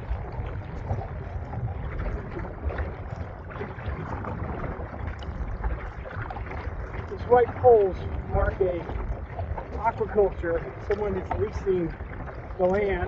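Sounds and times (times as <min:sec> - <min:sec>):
water splashing against hull: 0:00.0 - 0:13.0
wind buffeting microphone: 0:00.0 - 0:13.0.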